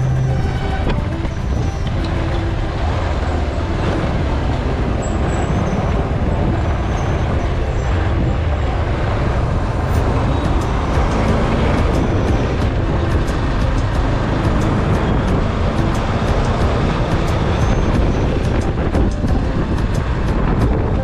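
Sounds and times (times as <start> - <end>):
road and engine noise: 0.0 - 21.0
wind on microphone: 0.0 - 21.0.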